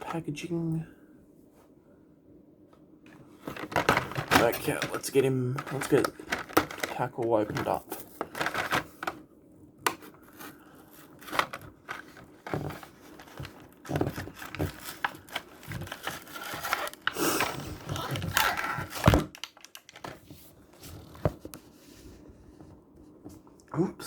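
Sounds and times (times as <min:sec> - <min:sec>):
plastic crinkling: 0:03.4 - 0:09.2, 0:10.0 - 0:21.2
cardboard tearing: 0:11.0 - 0:19.8.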